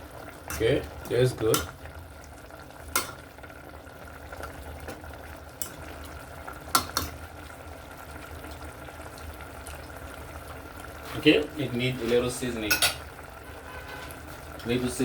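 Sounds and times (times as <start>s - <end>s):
pot bubbling: 0.0s - 15.0s
utensil clinking against pot: 12.7s - 13.0s.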